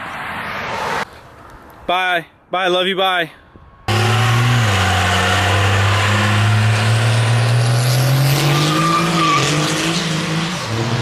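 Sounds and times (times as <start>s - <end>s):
diesel truck engine revving: 3.9s - 11.0s.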